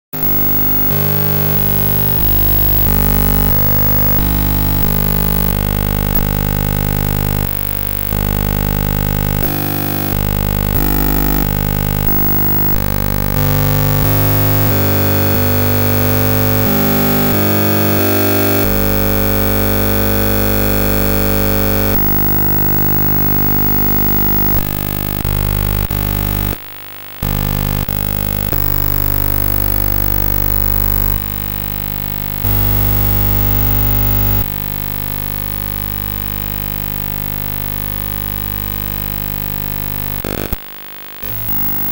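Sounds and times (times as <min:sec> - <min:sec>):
harsh buzzing electronic drones: 0:00.2 - 0:41.9.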